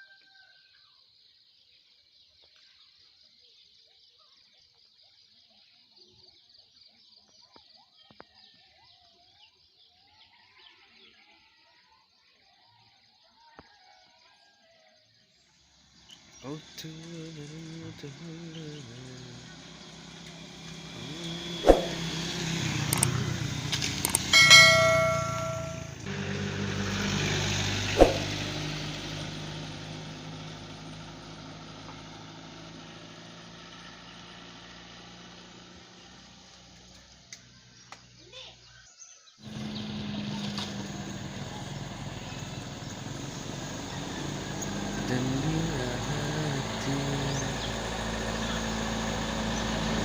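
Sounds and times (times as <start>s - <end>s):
truck engine: 16.0s - 37.2s, 39.4s - 50.0s
metallic clicks: 22.9s - 23.2s, 24.0s - 24.3s
bell-like metallic ringing: 24.1s - 26.1s
sharp knock: 28.0s - 28.2s.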